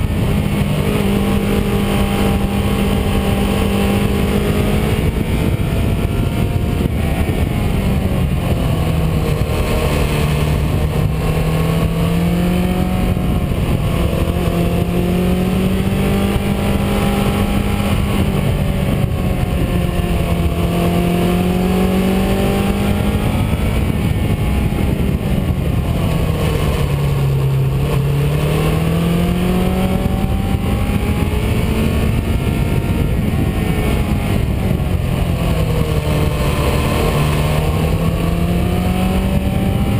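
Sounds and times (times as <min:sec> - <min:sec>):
car engine: 0:00.0 - 0:39.9
road noise: 0:00.0 - 0:39.9.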